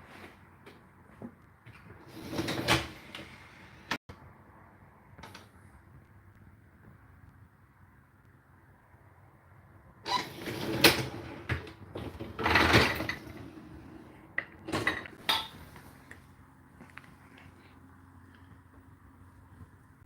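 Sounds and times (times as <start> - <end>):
dishwasher racks and dishes clattering: 2.1 - 3.4, 10.1 - 15.7.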